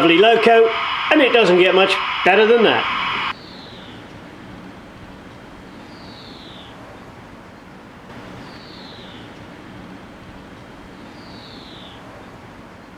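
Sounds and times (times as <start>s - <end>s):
bird whistled call: 0.0s - 4.1s, 5.7s - 6.8s, 8.2s - 9.6s, 10.3s - 12.1s
rushing background noise: 0.0s - 12.9s.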